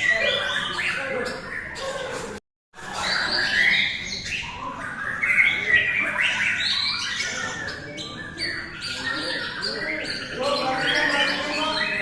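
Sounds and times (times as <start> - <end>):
songbirds singing whistled phrases: 0.0 - 2.0, 2.8 - 12.0.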